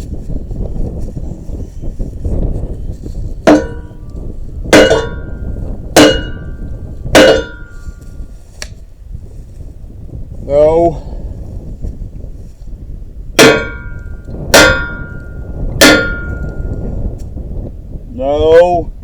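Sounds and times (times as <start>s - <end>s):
hammer blows on steel: 3.5s - 8.1s, 13.4s - 16.9s.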